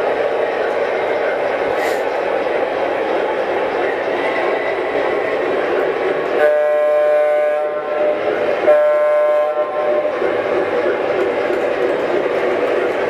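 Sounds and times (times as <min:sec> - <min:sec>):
steady background noise: 0:00.0 - 0:13.0
model train horn blasts: 0:06.4 - 0:10.1.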